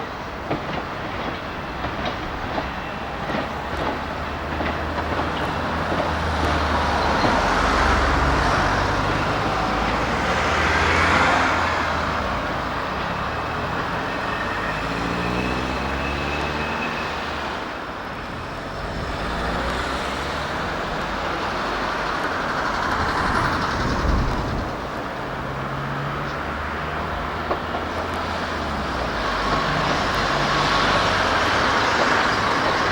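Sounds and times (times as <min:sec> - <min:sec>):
diesel locomotive engine drone: 0:00.0 - 0:32.9.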